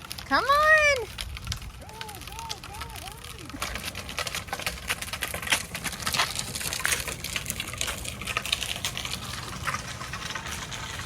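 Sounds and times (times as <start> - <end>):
wind buffeting microphone: 0.4 - 4.3.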